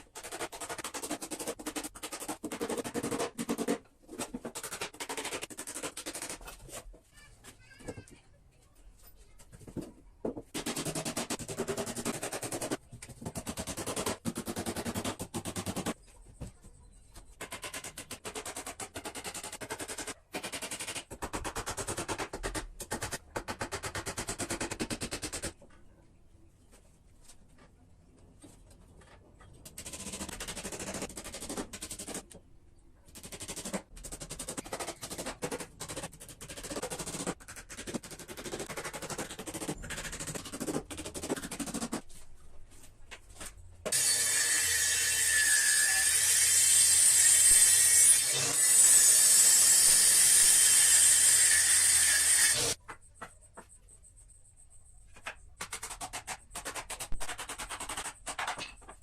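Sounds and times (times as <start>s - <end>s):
power tool running: 48.1s - 52.8s.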